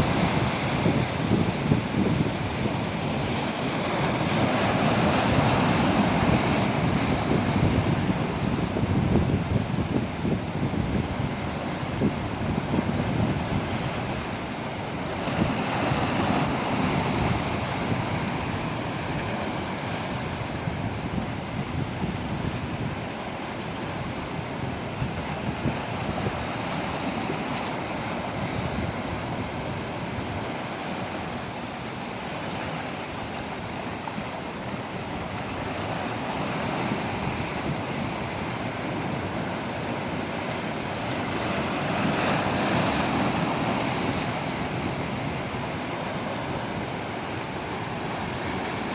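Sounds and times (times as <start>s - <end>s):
sea waves washing ashore: 0.0s - 48.9s
wind: 0.0s - 48.9s.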